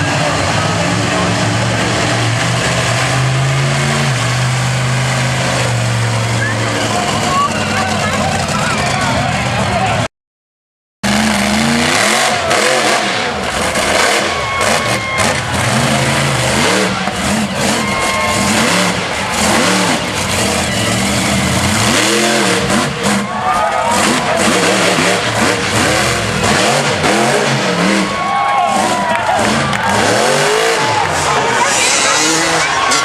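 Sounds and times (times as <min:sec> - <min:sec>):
monster truck engine revving: 0:00.0 - 0:10.1, 0:11.0 - 0:33.0.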